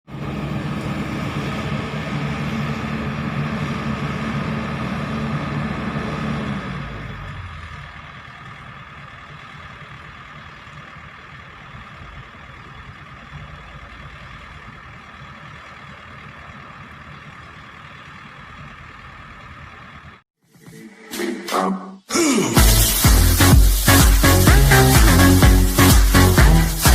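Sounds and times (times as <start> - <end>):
excavator diesel engine running: 0.1 - 20.2, 22.6 - 26.9.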